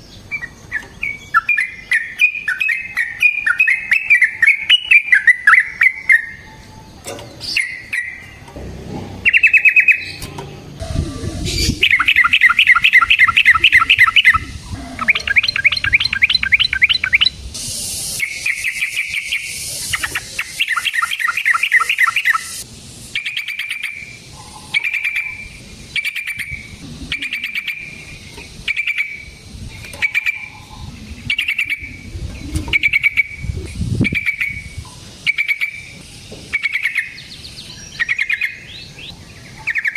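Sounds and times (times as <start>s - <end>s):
bird singing with rattling trills: 0.0s - 39.9s
short bird calls: 10.8s - 17.4s.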